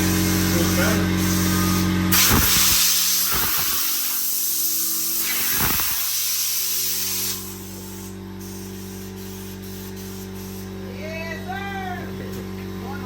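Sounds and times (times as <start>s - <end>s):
steady low hum: 0.0s - 13.0s
spray hiss: 0.6s - 10.7s.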